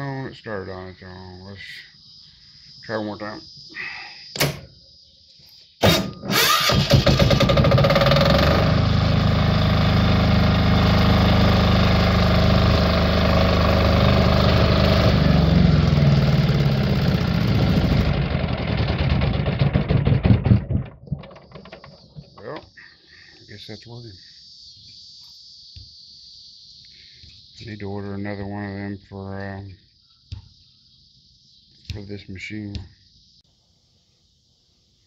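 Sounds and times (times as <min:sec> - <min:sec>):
electric starter click: 0:05.8 - 0:08.2
diesel generator engine running: 0:05.8 - 0:20.9.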